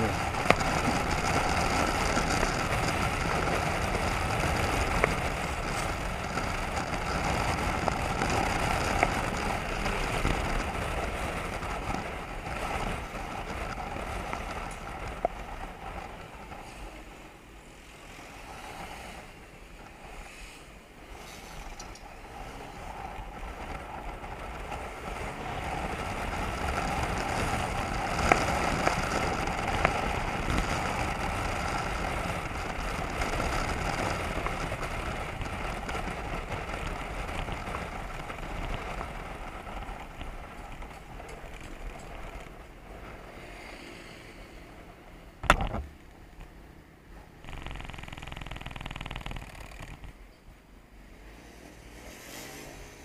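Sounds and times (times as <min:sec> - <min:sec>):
motorcycle engine running: 0:00.0 - 0:15.9, 0:47.4 - 0:50.2
wind and road noise: 0:00.0 - 0:53.0.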